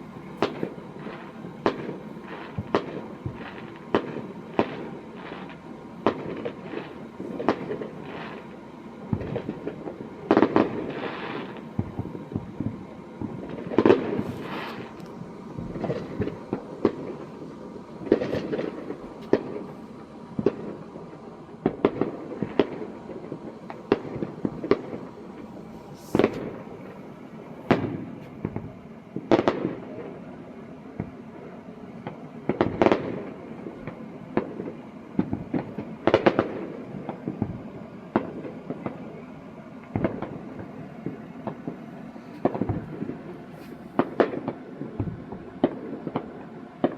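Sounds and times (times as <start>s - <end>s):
echoing firework booms: 0.0s - 8.5s, 9.1s - 14.9s, 15.5s - 17.4s, 21.6s - 29.9s, 39.9s - 41.8s, 42.4s - 43.3s, 44.0s - 46.9s
fireworks bangs and pops: 0.0s - 30.2s, 32.0s - 46.9s.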